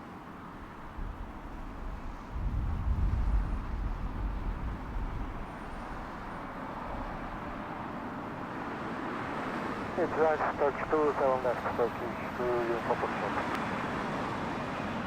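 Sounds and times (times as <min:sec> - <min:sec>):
jet airliner roaring overhead: 0:00.8 - 0:15.0.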